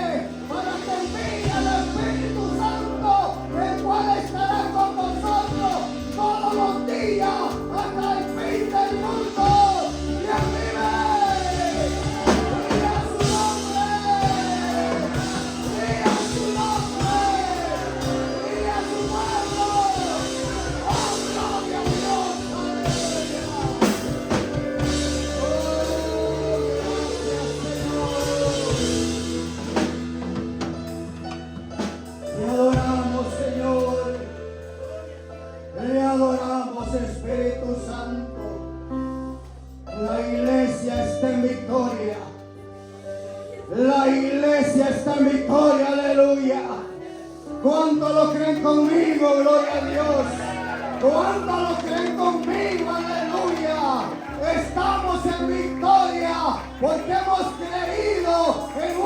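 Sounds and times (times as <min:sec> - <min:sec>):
band playing worship music: 0:00.0 - 0:59.0
person singing: 0:00.5 - 0:30.3.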